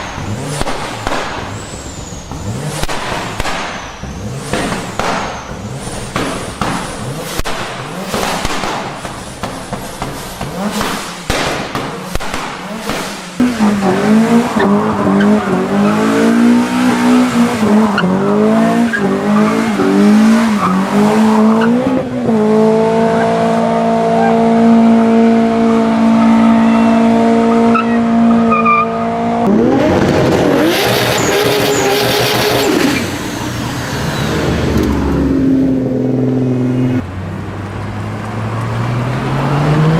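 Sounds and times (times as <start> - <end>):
tyre squeal: 0.0 - 7.4, 13.2 - 22.2, 23.0 - 24.6, 25.5 - 29.2, 30.6 - 34.6
car engine revving: 0.0 - 39.9.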